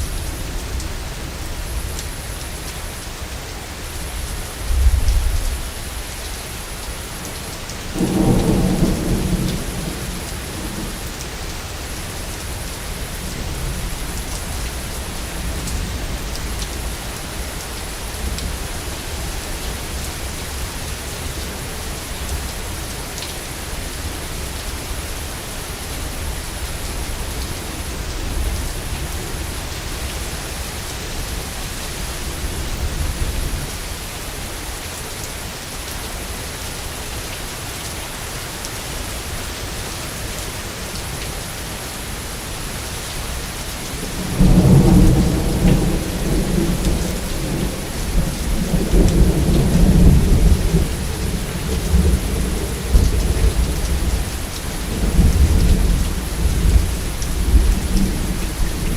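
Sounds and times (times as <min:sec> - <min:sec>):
heavy rain: 0:00.0 - 0:58.9
low rumble of thunder: 0:04.6 - 0:06.0, 0:07.9 - 0:11.2, 0:44.0 - 0:58.9.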